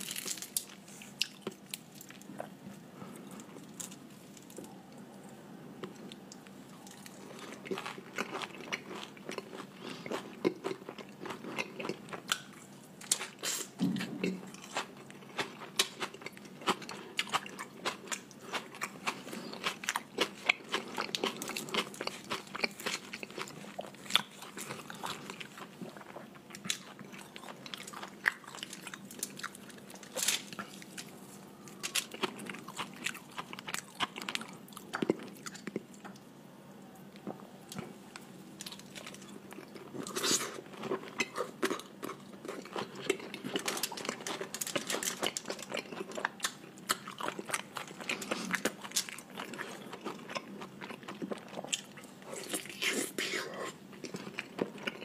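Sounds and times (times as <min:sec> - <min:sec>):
close chewing and biting: 0:05.8 - 0:36.0, 0:38.6 - 0:55.0.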